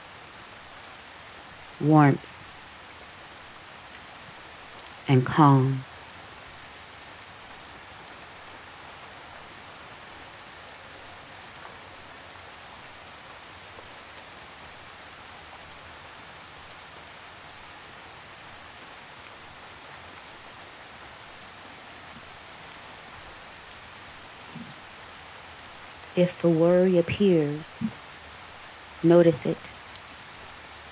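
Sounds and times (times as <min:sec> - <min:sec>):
rain drizzle hiss: 0:00.0 - 0:30.9.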